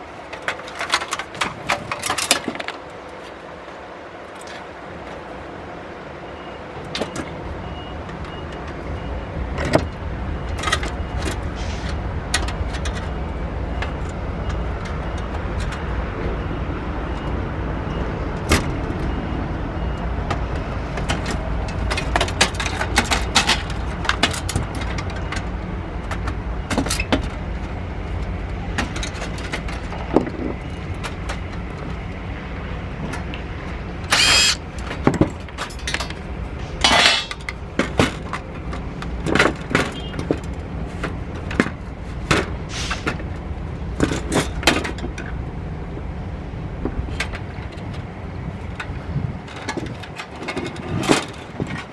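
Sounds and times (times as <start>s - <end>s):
parts clicking and knocking: 0.2s - 3.0s, 9.5s - 16.0s, 19.9s - 32.3s, 32.9s - 51.9s
rasping bursts: 34.1s - 34.6s.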